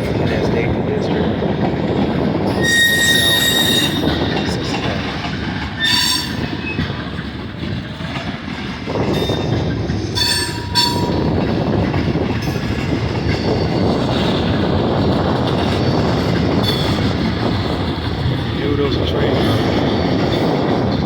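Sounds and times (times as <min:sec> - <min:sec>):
train wheels rumbling on rails: 0:00.0 - 0:21.0
high-pitched wheel squeals: 0:02.5 - 0:04.2, 0:05.8 - 0:06.9, 0:10.2 - 0:11.3.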